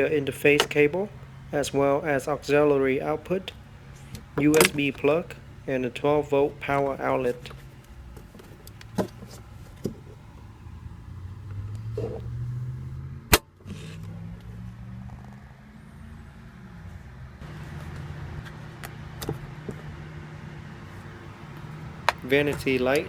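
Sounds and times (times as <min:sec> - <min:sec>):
car engine idling hum: 0:00.0 - 0:13.0, 0:20.9 - 0:23.0.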